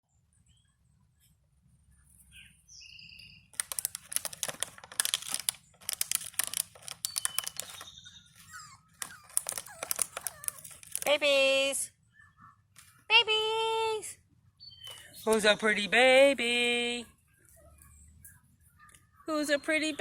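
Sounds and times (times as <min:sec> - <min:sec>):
puppies scrabbling and scratching: 0:03.6 - 0:11.2
puppy squeaks: 0:07.0 - 0:11.1.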